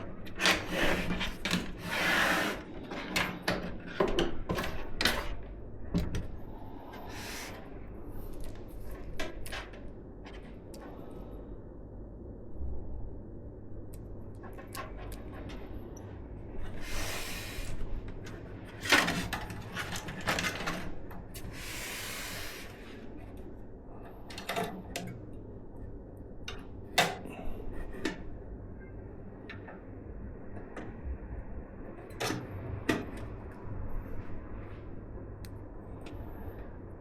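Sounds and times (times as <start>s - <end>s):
low steady hum: 0.0s - 37.0s
clicks and knocks of computer parts: 18.8s - 21.2s
brief rustling hisses: 21.5s - 22.8s.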